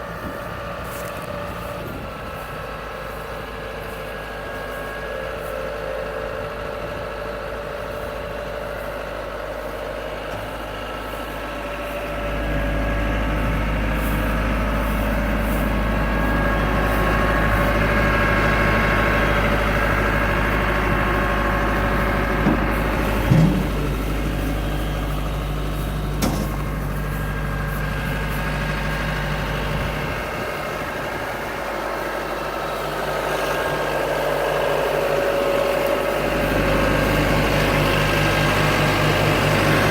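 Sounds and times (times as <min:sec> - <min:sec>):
telehandler engine running: 0:00.0 - 0:39.9
metal clank: 0:22.4 - 0:24.2, 0:25.8 - 0:26.9.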